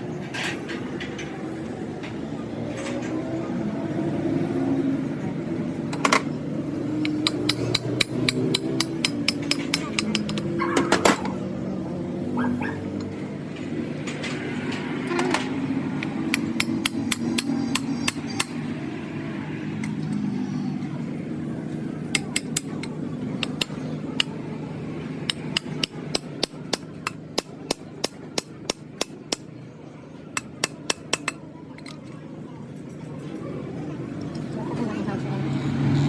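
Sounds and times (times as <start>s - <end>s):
hammer tapping on metal: 7.0s - 11.4s, 16.0s - 18.6s, 25.3s - 29.5s.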